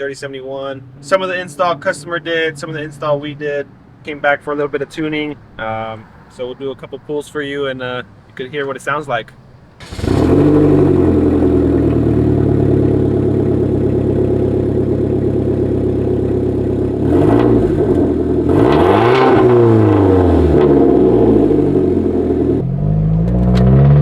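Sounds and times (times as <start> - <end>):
car engine at high revs: 0.0 - 6.4, 8.0 - 24.0.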